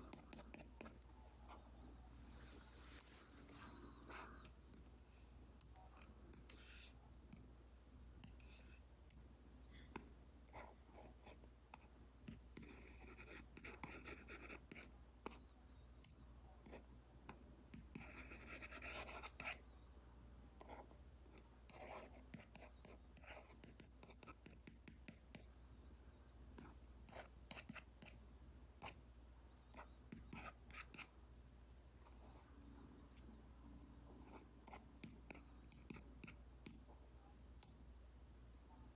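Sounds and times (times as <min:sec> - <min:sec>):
stylus scratching on screen: 0:00.0 - 0:04.9, 0:17.8 - 0:19.6, 0:29.7 - 0:31.1.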